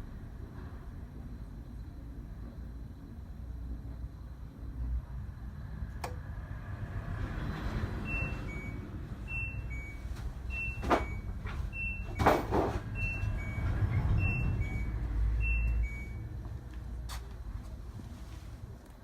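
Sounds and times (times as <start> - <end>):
washing machine beeping: 7.4 - 16.5.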